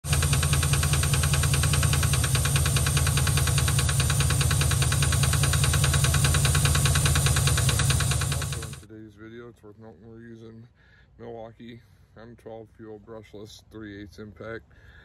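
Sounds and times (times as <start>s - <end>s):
engine running: 0.0s - 8.8s
fast even valve ticking: 0.0s - 8.8s.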